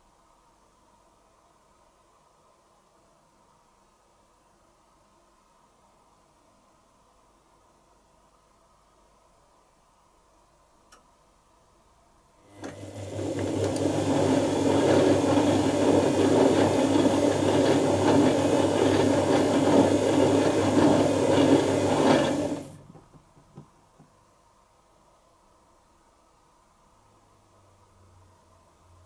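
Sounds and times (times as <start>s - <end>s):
washing machine running: 12.4s - 23.6s.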